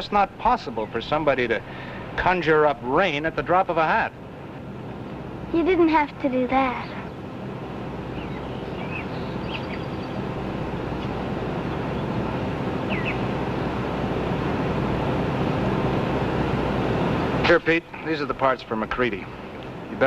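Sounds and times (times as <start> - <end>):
low rumbling noise: 0.0 - 20.0
bird chirps: 8.1 - 10.3, 12.9 - 13.3.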